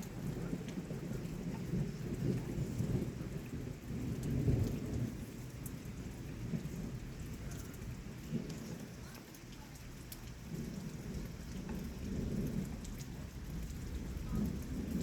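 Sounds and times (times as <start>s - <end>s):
raindrop ticks: 0.0s - 15.0s
steady rain: 0.0s - 15.0s
thunder rumbling: 0.0s - 15.0s.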